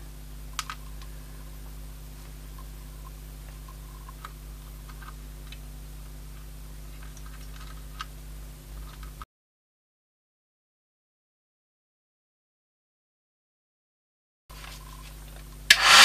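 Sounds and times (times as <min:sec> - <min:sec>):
steady electrical hum: 0:00.0 - 0:09.3, 0:14.5 - 0:16.0.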